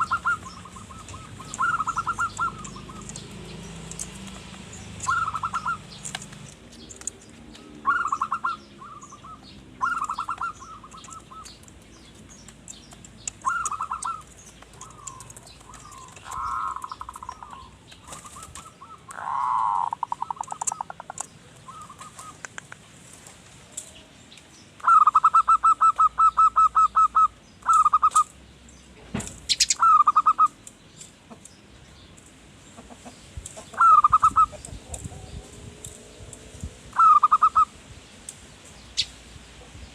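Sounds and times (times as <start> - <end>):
dove cooing: 0.0 - 6.5, 7.6 - 11.8, 13.4 - 22.6, 24.8 - 28.3, 33.6 - 36.2, 36.9 - 37.8
small birds chirping: 0.0 - 39.9.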